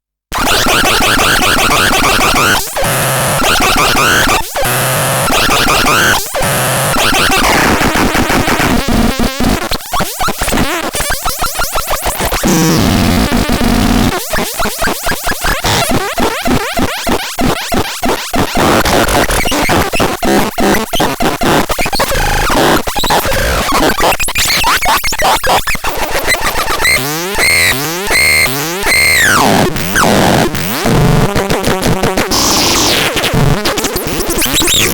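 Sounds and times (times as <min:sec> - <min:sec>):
harsh electronic synthesizer noise: 0:00.3 - 0:34.9.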